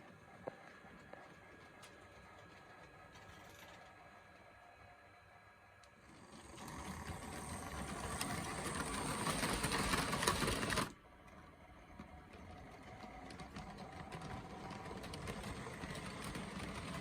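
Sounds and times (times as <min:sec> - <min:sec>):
model train rattling and clicking: 0:05.8 - 0:17.0.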